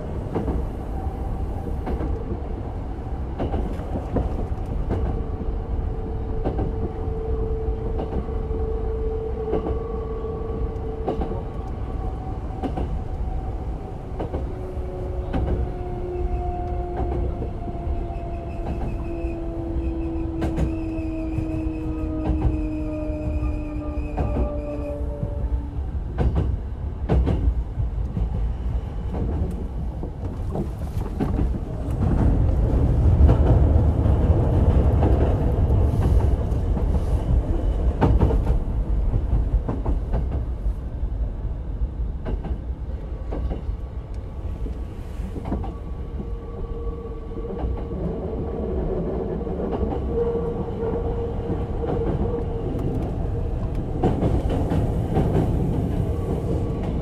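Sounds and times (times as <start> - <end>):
train wheel and track rumble: 0.0 - 57.0
clacks over rail joints: 26.1 - 37.0.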